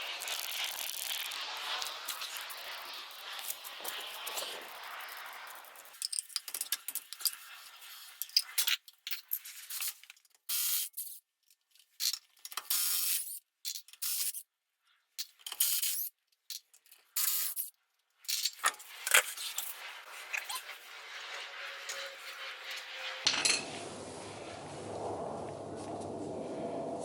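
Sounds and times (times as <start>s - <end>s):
spray-paint can spraying: 0.0s - 8.1s, 10.5s - 11.2s, 17.2s - 17.7s
spray can clicks and rattles: 0.1s - 11.2s, 12.0s - 14.4s, 15.2s - 17.7s.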